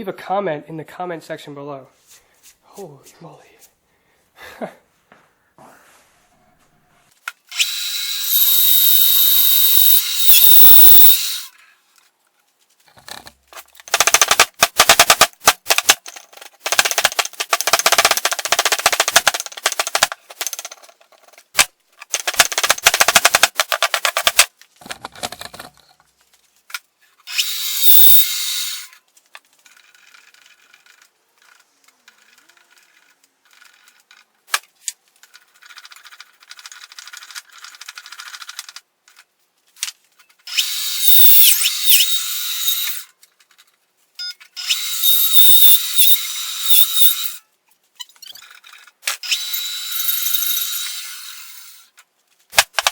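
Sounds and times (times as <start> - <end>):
rapid rattling and clatter: 13.8 - 25.8
power saw whining: 44.6 - 47.4, 49.2 - 51.9.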